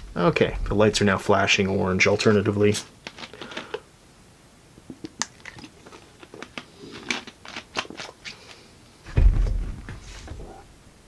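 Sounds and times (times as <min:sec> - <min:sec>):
dull low thump: 0:09.1 - 0:10.5.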